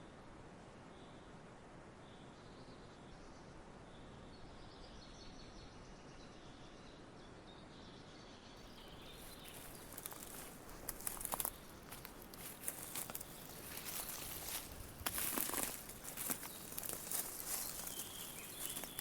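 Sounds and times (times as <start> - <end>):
dry crackling rustles: 8.7 - 19.0
faint high bird chirps: 8.7 - 19.0
soft steady hiss: 8.7 - 19.0.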